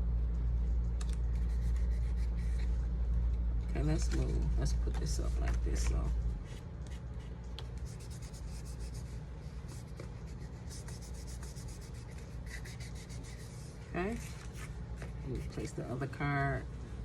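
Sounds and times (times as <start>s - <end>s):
cardstock rubbed by hands: 1.2s - 2.8s, 5.0s - 15.8s.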